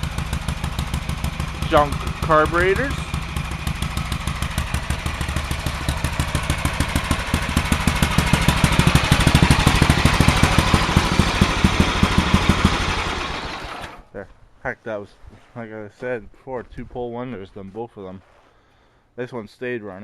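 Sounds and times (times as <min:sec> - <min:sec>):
small gasoline engine running: 0:00.0 - 0:14.0.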